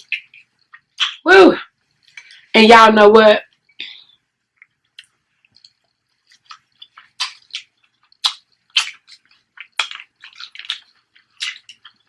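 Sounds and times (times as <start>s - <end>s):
wet chewing and lip-smacking: 0.0s - 1.2s, 4.5s - 12.0s.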